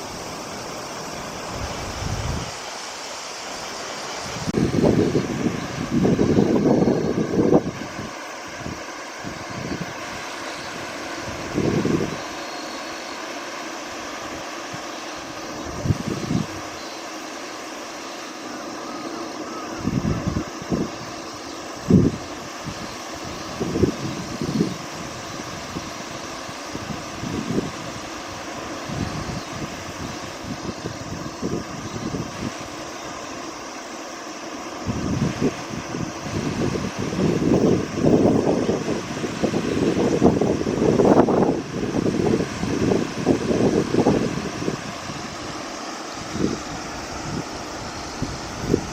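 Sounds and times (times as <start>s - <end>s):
rushing outdoor noise: 0.0s - 48.9s
wind buffeting microphone: 1.2s - 2.6s, 4.3s - 12.3s, 15.5s - 16.8s, 19.8s - 21.2s, 21.8s - 32.8s, 34.8s - 45.6s, 46.2s - 48.9s.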